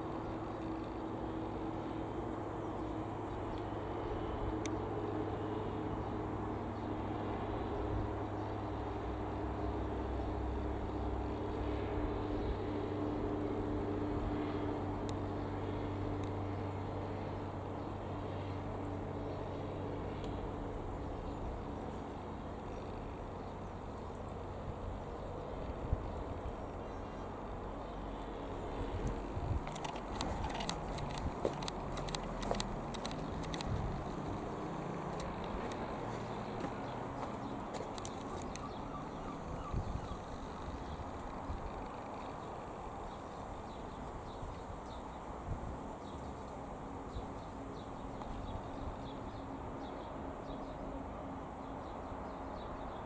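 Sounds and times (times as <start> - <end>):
light aircraft engine droning: 0.0 - 53.0.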